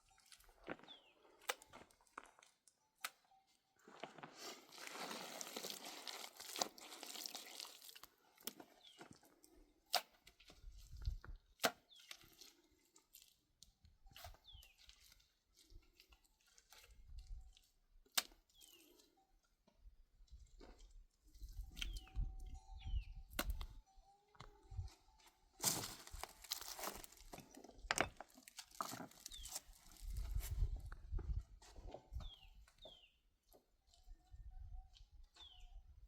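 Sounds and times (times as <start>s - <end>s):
rustling tearing handling noise: 4.7s - 8.0s
bird-like chirps: 21.4s - 25.3s, 32.2s - 33.2s, 33.9s - 36.0s.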